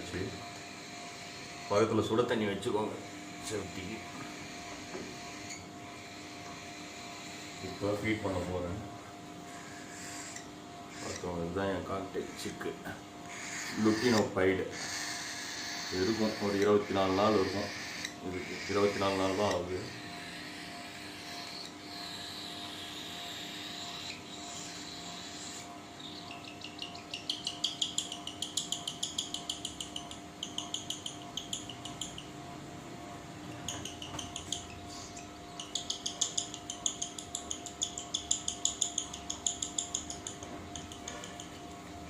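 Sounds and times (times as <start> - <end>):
cockatiel chick begging calls: 9.5 - 11.3, 13.2 - 32.3.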